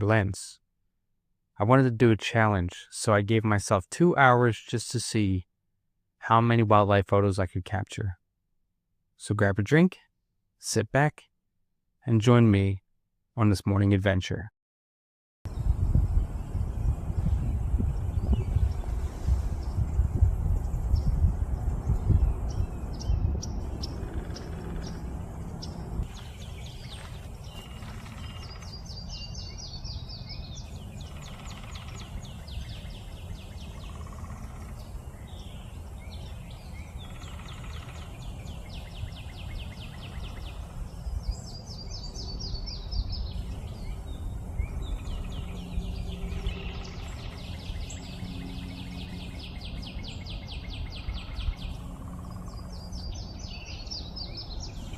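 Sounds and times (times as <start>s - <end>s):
low rumble: 15.5s - 29.0s
songbirds chirping: 15.5s - 54.9s.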